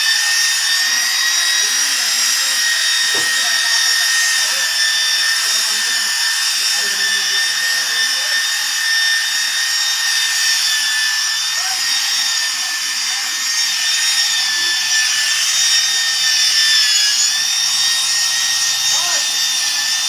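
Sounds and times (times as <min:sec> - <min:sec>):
power tool motor whine: 0:00.0 - 0:20.0.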